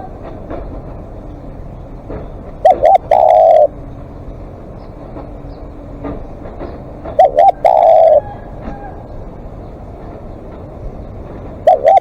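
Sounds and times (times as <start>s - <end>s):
dove cooing: 2.6s - 4.0s, 7.0s - 9.2s, 11.6s - 12.0s.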